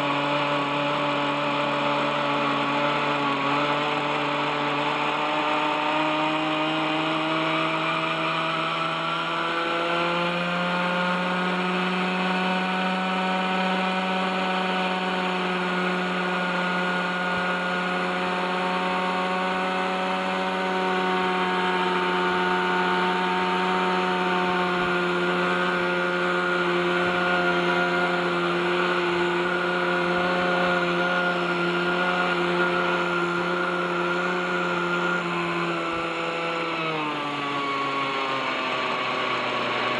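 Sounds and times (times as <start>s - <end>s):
model helicopter engine running: 0.0s - 39.9s.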